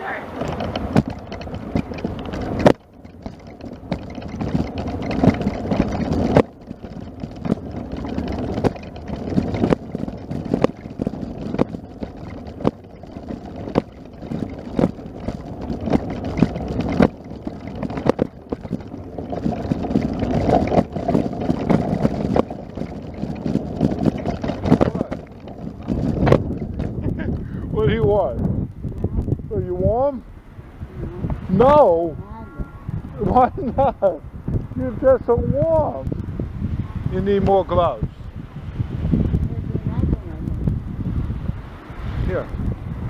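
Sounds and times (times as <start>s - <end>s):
wind buffeting microphone: 0.0s - 43.0s
short knocks: 0.3s - 27.2s.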